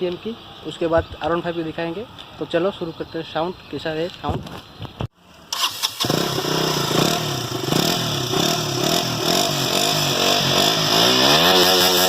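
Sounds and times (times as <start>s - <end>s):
motorcycle engine revving: 5.5s - 12.0s.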